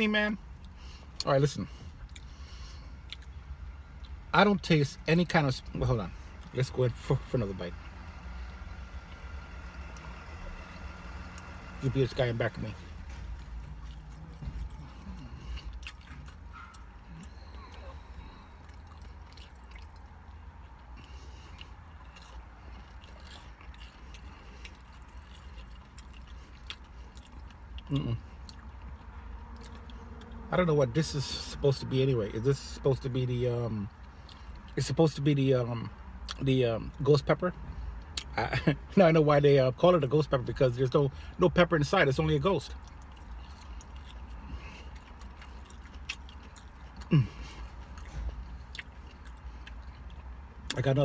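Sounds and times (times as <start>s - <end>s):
steady low hum: 0.0s - 51.0s
person chewing food: 0.5s - 4.3s, 12.7s - 30.5s, 33.9s - 34.8s, 42.7s - 50.8s.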